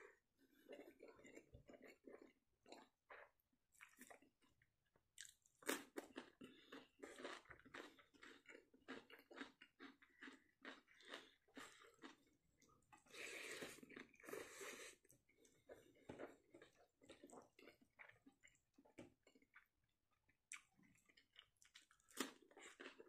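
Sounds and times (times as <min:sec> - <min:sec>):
person chewing wetly: 0:00.1 - 0:04.6, 0:05.2 - 0:23.0.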